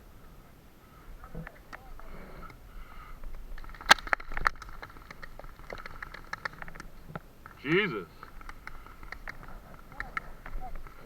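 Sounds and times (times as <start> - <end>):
distant paintball pops and clicks: 3.2 - 11.0
sharp paintball marker shots: 3.6 - 6.8.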